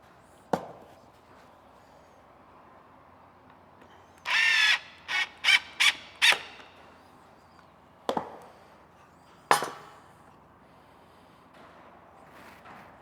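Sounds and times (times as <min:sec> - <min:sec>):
power drill driving screws: 0:04.3 - 0:06.6.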